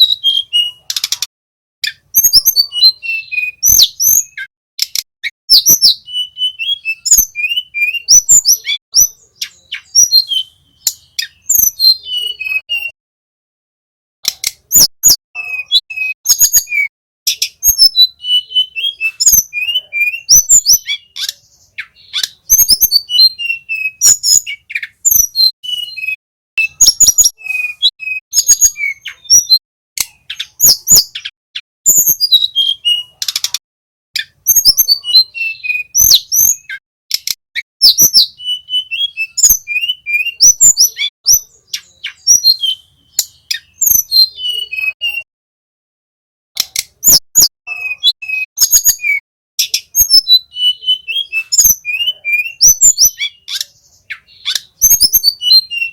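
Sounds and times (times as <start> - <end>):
small songbird singing: 0.0 - 13.0, 14.2 - 33.6, 34.2 - 45.3, 46.6 - 55.9.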